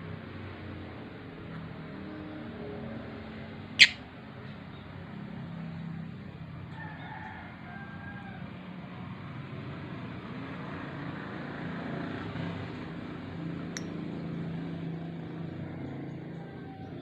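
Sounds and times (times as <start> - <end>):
short high chirp: 3.8 - 4.0.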